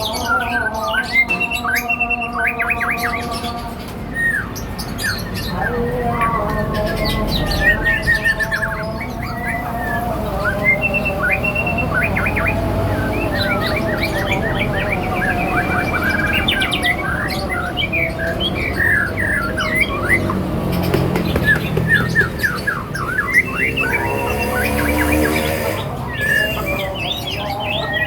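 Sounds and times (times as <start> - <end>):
songbirds chirping: 0.0 - 28.0.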